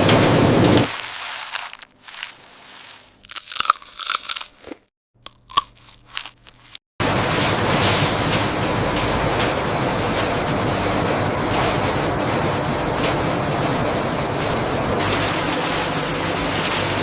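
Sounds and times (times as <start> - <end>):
potato chips crunching: 0.9 - 6.8
steady machine noise: 7.0 - 17.0.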